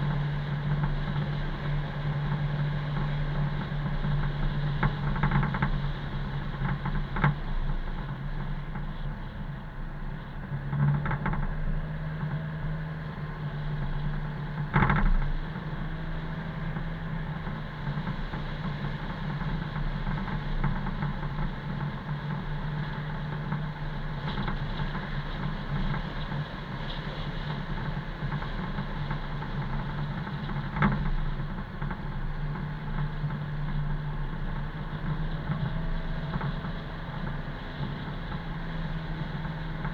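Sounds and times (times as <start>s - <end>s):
car engine drone: 0.0s - 39.9s
road noise: 0.0s - 39.9s.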